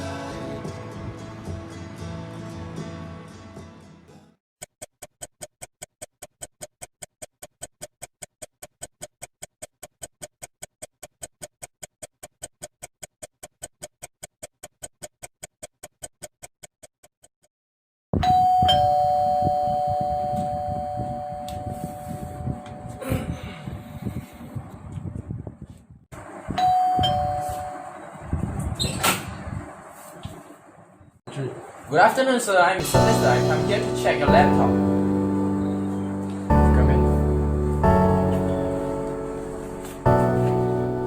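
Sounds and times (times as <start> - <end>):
two-tone doorbell chime: 18.2 - 23.0, 26.6 - 28.0, 32.8 - 41.0.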